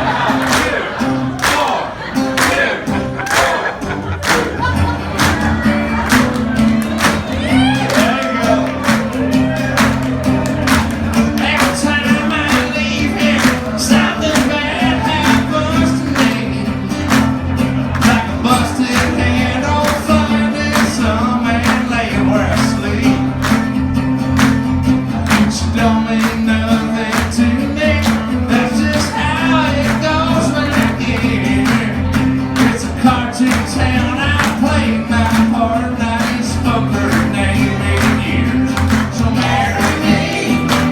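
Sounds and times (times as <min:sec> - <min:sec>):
strummed guitar: 0:00.0 - 0:40.9
man singing: 0:06.9 - 0:40.9.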